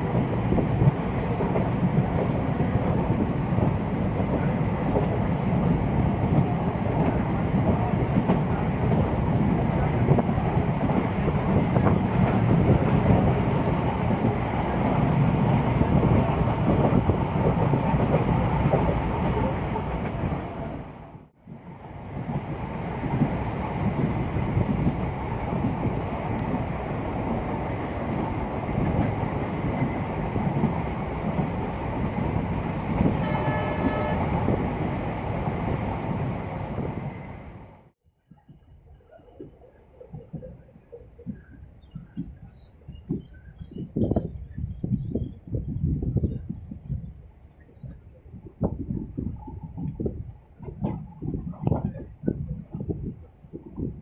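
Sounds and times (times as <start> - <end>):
wind on microphone: 0.0 - 37.6, 38.3 - 54.0.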